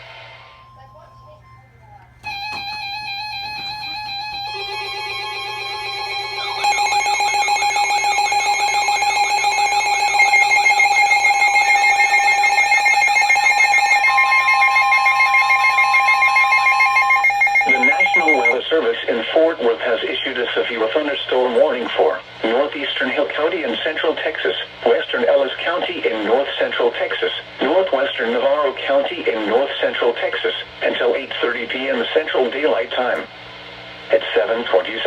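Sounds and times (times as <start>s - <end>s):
emergency alert beeping tones: 0.4s - 18.6s.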